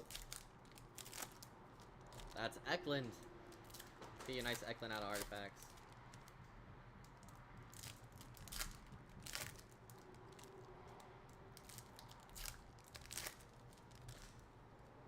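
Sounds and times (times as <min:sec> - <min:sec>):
cards and plastic packaging crinkling: 0:00.0 - 0:14.9.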